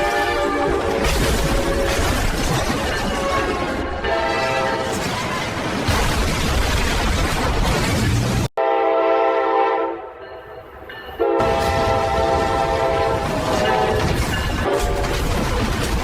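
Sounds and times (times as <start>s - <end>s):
multi-note train horn: 0.0s - 0.9s, 3.5s - 4.9s, 8.6s - 10.5s, 11.2s - 14.1s
train rumbling: 0.0s - 8.5s, 9.9s - 16.0s.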